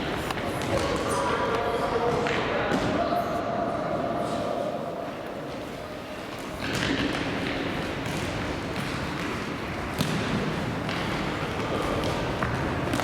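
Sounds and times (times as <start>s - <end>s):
echoing din of play: 0.0s - 13.0s
ball kicked and bouncing: 6.6s - 11.1s.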